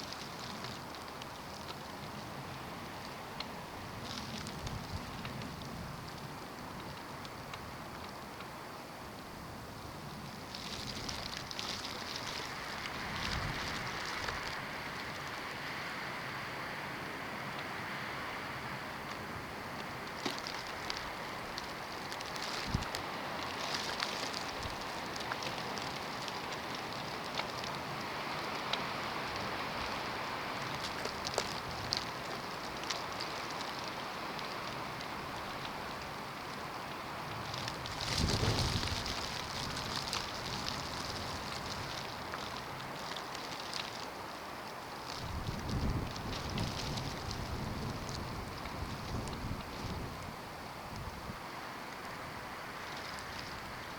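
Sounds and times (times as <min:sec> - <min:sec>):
fine crackling ticks: 0:00.0 - 0:09.3, 0:10.1 - 0:15.5, 0:19.0 - 0:50.3, 0:52.8 - 0:53.9
wind and blowing snow: 0:00.0 - 0:53.9
faint ticks: 0:03.0 - 0:08.5
wind blowing: 0:37.3 - 0:43.0, 0:45.2 - 0:51.5
wind gust on microphone: 0:37.7 - 0:42.0, 0:45.2 - 0:51.4.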